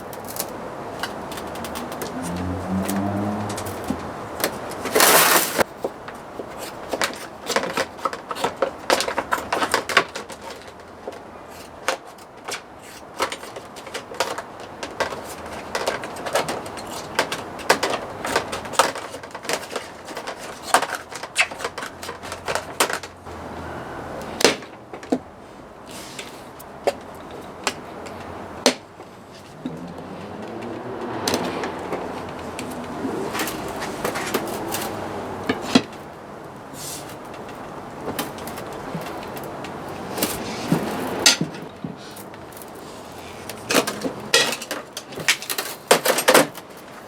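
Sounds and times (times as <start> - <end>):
tools and metal parts clinking: 0.0 - 5.7, 37.0 - 47.0.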